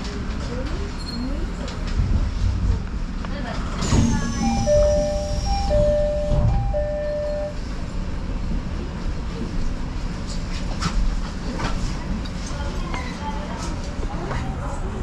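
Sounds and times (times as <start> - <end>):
electric train rumbling: 0.0 - 15.0
two-tone electronic chime: 4.4 - 7.6.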